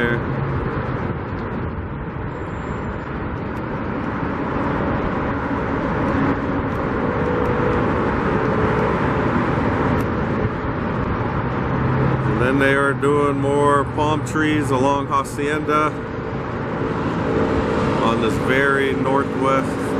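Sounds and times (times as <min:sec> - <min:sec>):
road traffic roar: 0:00.0 - 0:19.9.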